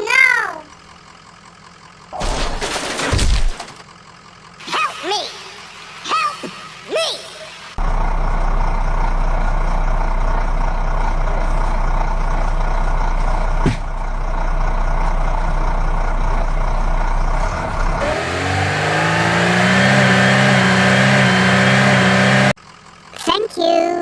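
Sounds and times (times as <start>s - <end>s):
vehicle engine humming: 0.0s - 2.2s, 3.6s - 24.0s
engine revving up: 17.4s - 22.6s.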